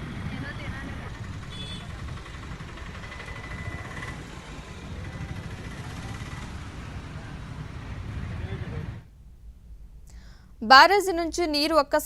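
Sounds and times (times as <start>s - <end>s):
road traffic rumble: 0.0s - 9.2s.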